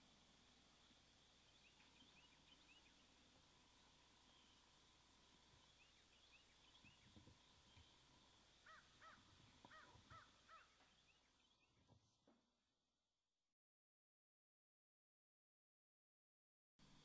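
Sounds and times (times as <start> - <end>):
faint bird chirps: 0.0 - 12.3
bird calling: 8.6 - 11.8.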